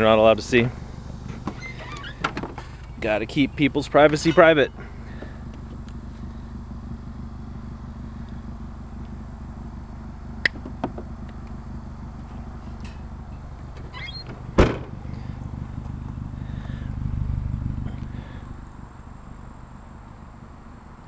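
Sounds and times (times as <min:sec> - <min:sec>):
car engine idling: 0:00.0 - 0:21.0
heavy thump: 0:14.3 - 0:15.0.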